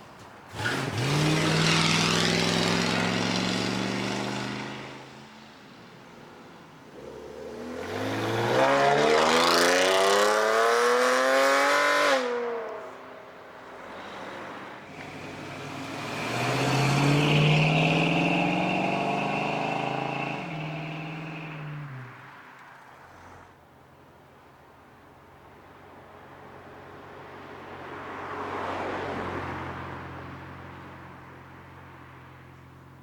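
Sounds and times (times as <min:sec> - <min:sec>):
car engine revving hard: 0:00.5 - 0:05.0, 0:07.0 - 0:12.7, 0:14.9 - 0:21.8
car passing by: 0:13.7 - 0:23.6, 0:27.7 - 0:31.0.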